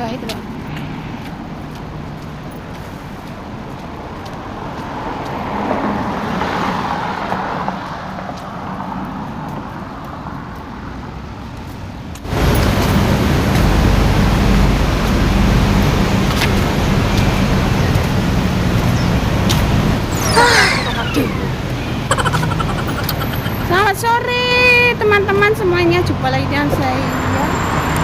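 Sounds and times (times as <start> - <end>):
street traffic: 0.0 - 28.0
loud rumbling noise: 19.7 - 24.1.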